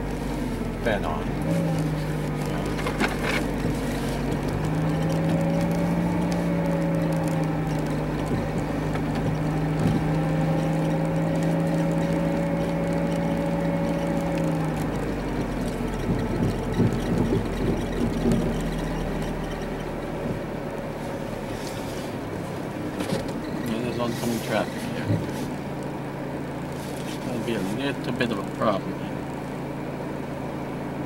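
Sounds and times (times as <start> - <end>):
low rumbling: 0.0 - 29.6
car engine humming: 0.0 - 31.0.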